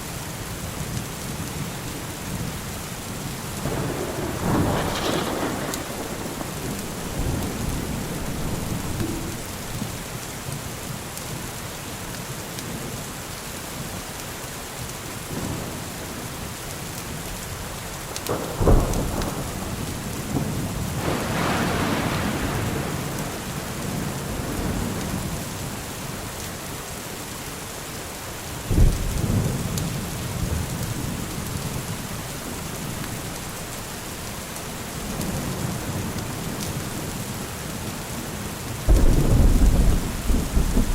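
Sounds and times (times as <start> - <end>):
steady rainfall: 0.0 - 40.9
thunder rumbling: 3.5 - 10.6, 18.1 - 25.6, 38.8 - 40.9
thunder claps: 3.6 - 10.2, 18.2 - 25.4, 38.9 - 40.9.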